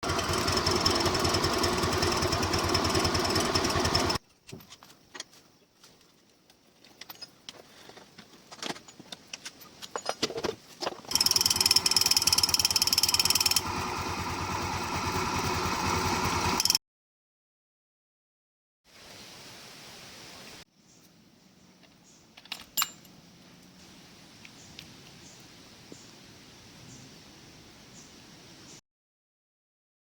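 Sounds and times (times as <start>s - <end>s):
scooter engine running: 0.0s - 4.2s, 11.1s - 16.8s.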